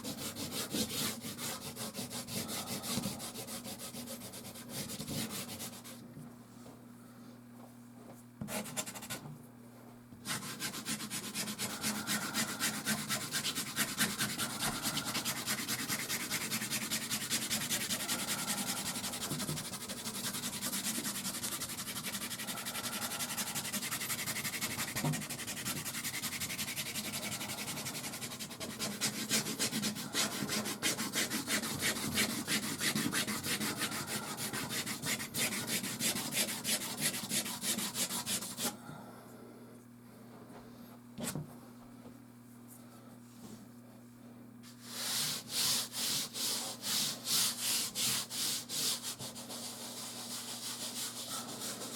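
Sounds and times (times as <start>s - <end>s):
pastel rubbing on canvas: 10.2s - 38.7s, 44.7s - 51.9s.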